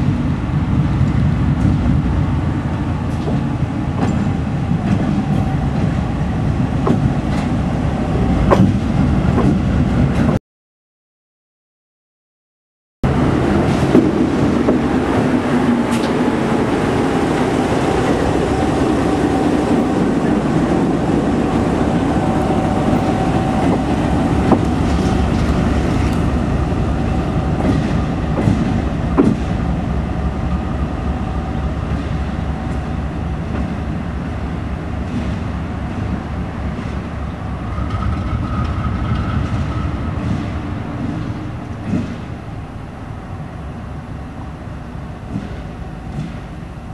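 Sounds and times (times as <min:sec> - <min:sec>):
diesel locomotive engine: 0:00.0 - 0:10.4, 0:13.0 - 0:46.9
rail noise: 0:00.0 - 0:10.4, 0:13.0 - 0:46.9.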